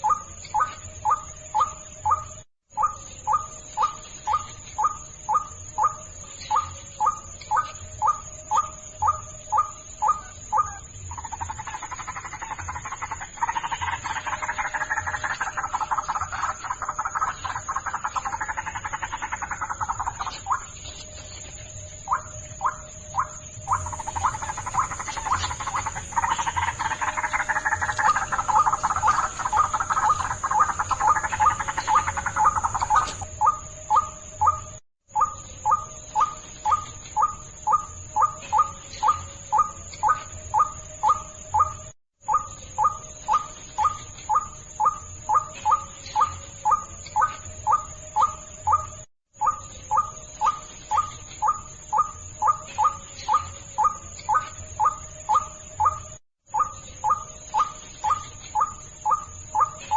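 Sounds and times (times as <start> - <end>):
waterhen calling: 23.7 - 33.2.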